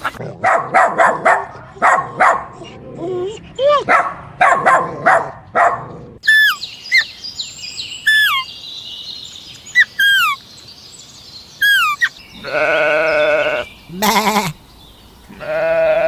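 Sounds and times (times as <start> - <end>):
small dog barking: 0.4 - 2.6, 3.8 - 5.9
bird chirping: 6.2 - 16.0.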